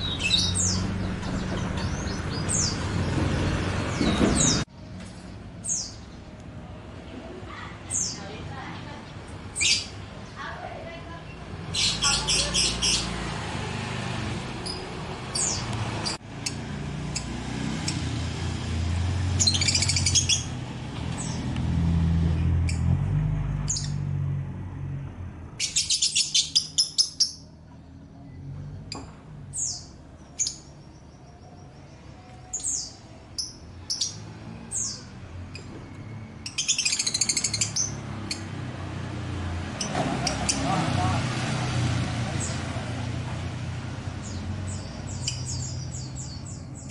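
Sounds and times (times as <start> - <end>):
small birds chirping: 0.0 - 4.7, 5.6 - 6.5, 7.5 - 18.1, 19.3 - 21.6, 23.6 - 24.0, 25.6 - 38.7, 44.0 - 46.9.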